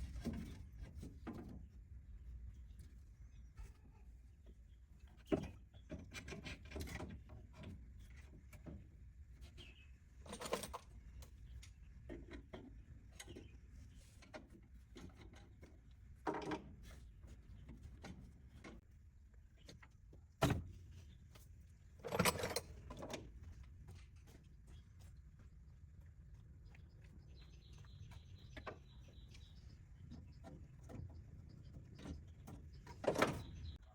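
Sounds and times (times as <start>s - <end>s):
tools and metal parts clinking: 10.2s - 10.9s, 22.0s - 23.3s.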